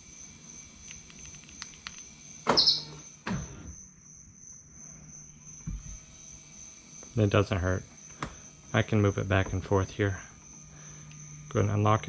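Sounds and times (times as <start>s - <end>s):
high insect trill: 0.0s - 12.0s
motor whirr: 5.7s - 11.5s.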